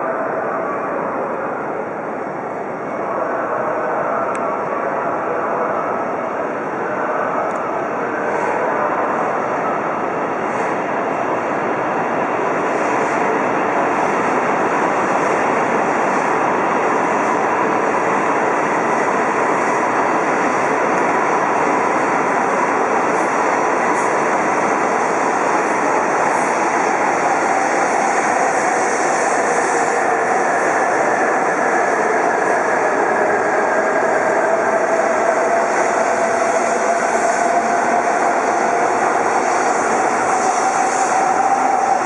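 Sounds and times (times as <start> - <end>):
train rushing past: 10.3 - 42.0.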